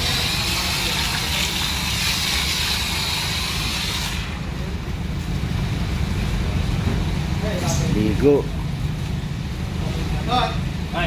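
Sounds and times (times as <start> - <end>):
hissing water spray: 0.0 - 5.9.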